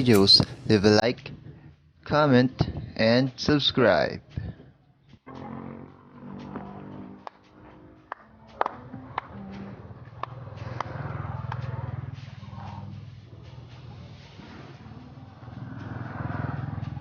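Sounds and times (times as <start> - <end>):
low engine hum: 4.2 - 17.0.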